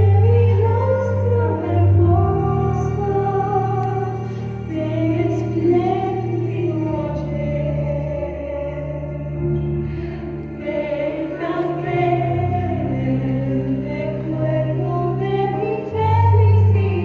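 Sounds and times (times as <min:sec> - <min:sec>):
voices singing: 0:10.4 - 0:17.0.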